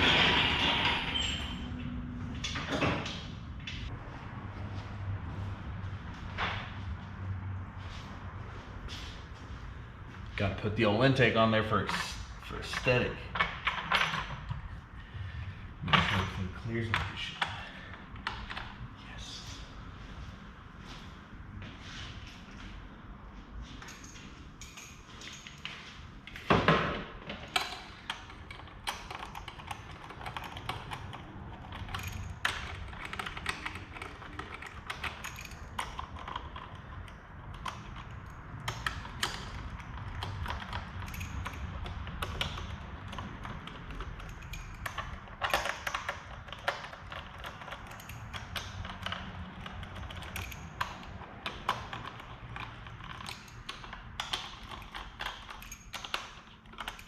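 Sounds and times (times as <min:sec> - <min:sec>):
loud metal clank: 0:00.0 - 0:01.2
metal tools clinking: 0:23.8 - 0:25.8, 0:27.4 - 0:57.0.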